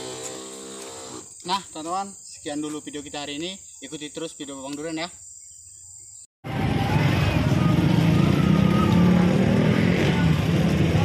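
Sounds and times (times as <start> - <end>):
crickets trilling: 0.0 - 6.3
road traffic engines: 6.4 - 11.0.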